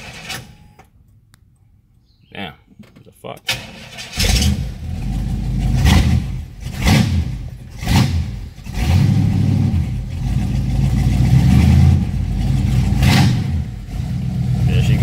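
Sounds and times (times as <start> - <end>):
car engine running rough: 4.2 - 15.0.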